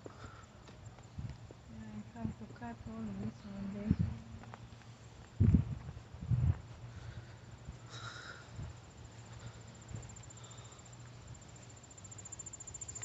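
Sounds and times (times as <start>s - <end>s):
crickets chirping: 6.7s - 13.0s.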